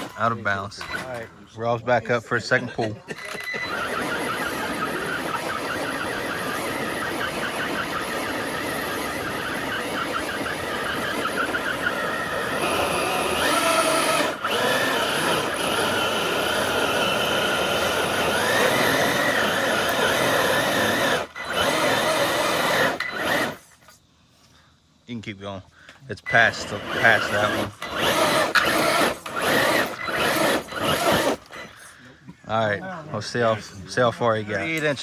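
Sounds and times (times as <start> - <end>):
electric motor and gears whining: 0.0 - 1.3, 3.1 - 23.7, 26.3 - 31.9.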